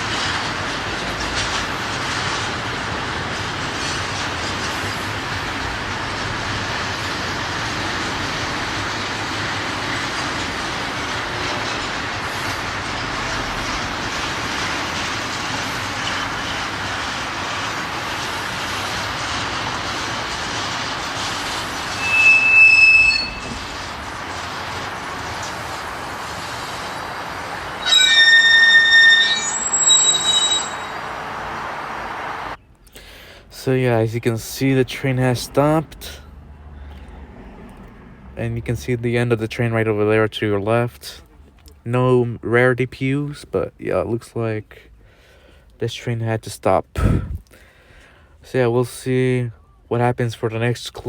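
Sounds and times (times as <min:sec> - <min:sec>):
train wheels on rail: 0:00.0 - 0:49.1
high brake squeal: 0:21.2 - 0:24.4, 0:26.4 - 0:32.7.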